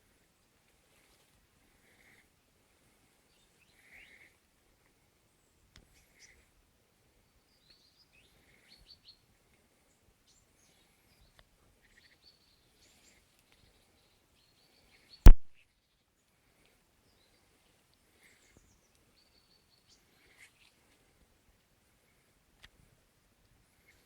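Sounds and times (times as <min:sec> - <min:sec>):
sharp loud knock: 0:15.3 - 0:15.5
woodland birds chirping: 0:18.2 - 0:20.9.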